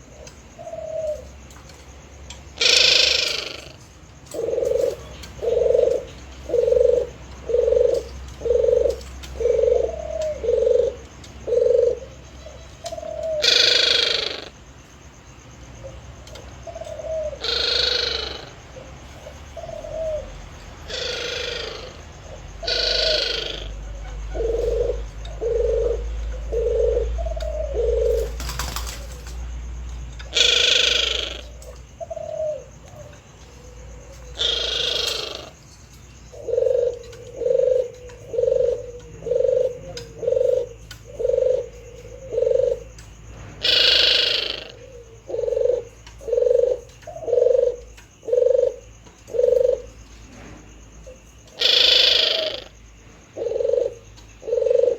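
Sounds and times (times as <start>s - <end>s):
dove cooing: 0.0s - 14.6s, 15.7s - 54.9s
sharp high bird calls: 12.4s - 14.6s, 16.9s - 18.6s, 20.9s - 22.0s, 22.6s - 26.0s, 30.3s - 31.6s, 34.1s - 35.6s, 43.6s - 45.0s, 51.5s - 52.8s.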